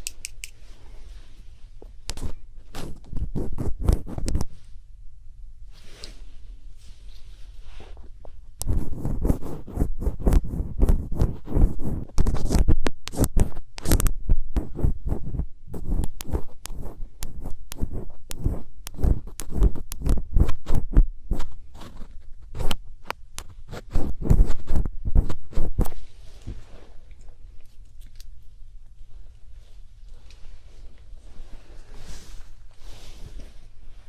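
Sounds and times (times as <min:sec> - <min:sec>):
ear pick scraping and tapping: 0:01.8 - 0:04.6, 0:08.6 - 0:26.0.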